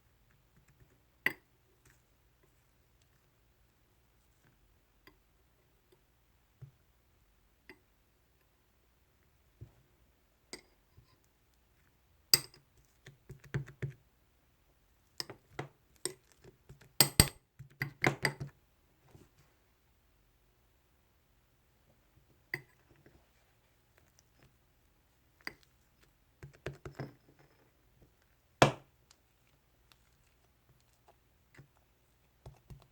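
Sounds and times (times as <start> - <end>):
sharp taps and clinks: 17.0 - 17.4.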